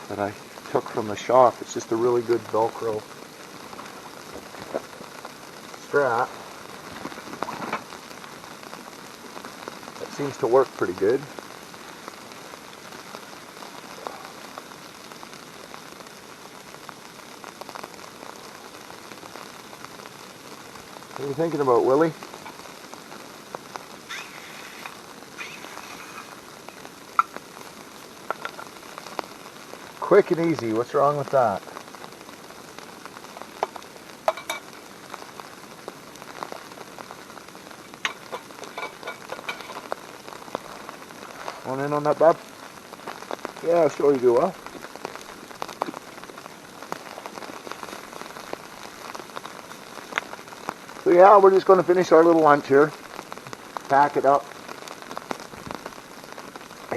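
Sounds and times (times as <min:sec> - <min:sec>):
food sizzling in a pan: 0:00.0 - 0:56.9
light crackles: 0:00.0 - 0:56.9
oil popping and spattering: 0:00.0 - 0:56.9.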